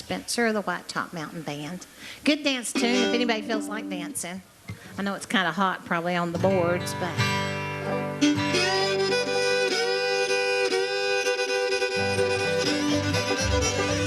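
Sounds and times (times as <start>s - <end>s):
fiddle playing a reel: 2.8s - 4.1s, 7.8s - 14.0s
rhythmic low accompaniment: 12.0s - 14.0s.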